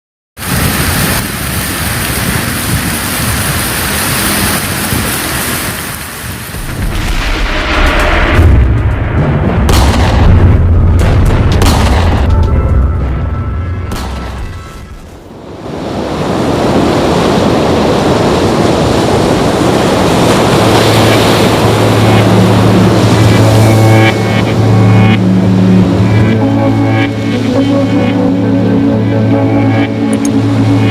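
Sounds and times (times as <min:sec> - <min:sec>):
water rushing: 0:00.4 - 0:08.4, 0:13.9 - 0:30.9
heavy rain pouring: 0:00.4 - 0:08.8, 0:14.4 - 0:30.9
steady low hum: 0:20.3 - 0:30.9.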